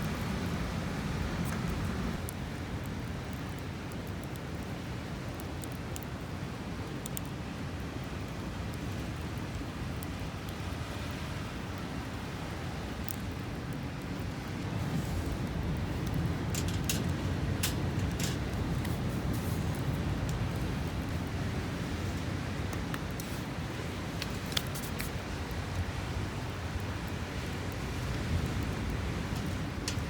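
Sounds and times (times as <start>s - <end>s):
campfire crackling: 0.0s - 30.0s
steady rushing background noise: 13.8s - 30.0s.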